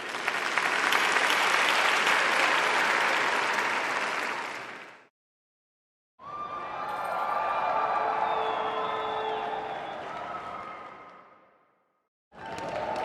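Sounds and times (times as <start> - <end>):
crowd applauding: 0.0 - 5.1, 6.6 - 11.2, 12.4 - 13.0.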